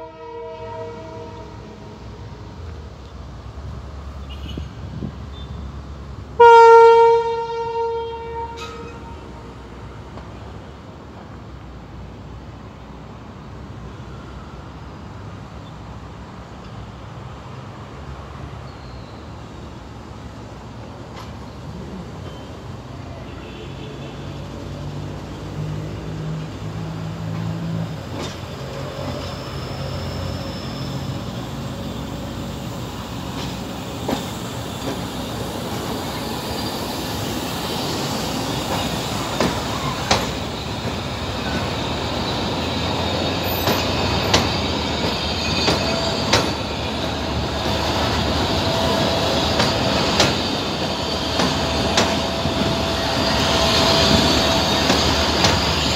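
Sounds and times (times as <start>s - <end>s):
train wheels rumbling on rails: 7.1s - 55.9s
wheels clacking over rail joints: 26.3s - 29.7s, 32.8s - 55.9s
high wheel squeal: 28.4s - 55.9s.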